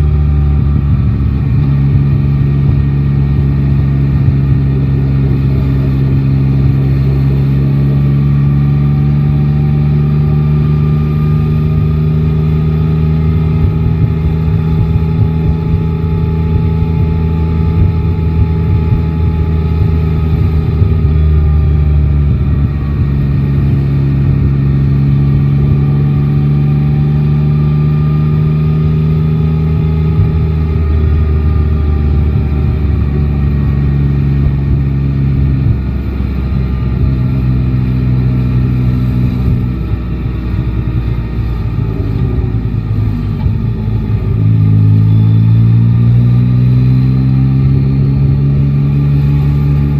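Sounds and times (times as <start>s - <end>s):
wind rush: 0.0s - 7.6s, 10.4s - 26.7s
motorcycle engine running: 0.0s - 49.9s.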